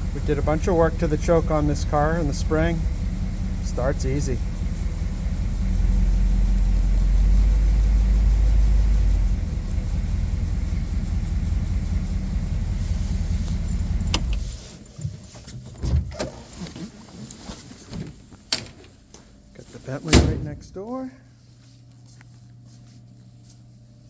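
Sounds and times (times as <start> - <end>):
car engine idling: 0.0 - 15.4.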